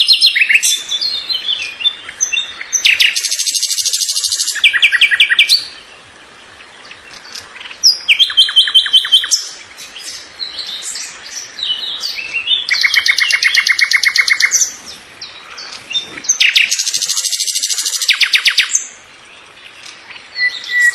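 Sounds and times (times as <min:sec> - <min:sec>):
songbird trilling: 0:00.0 - 0:06.0, 0:06.6 - 0:20.9.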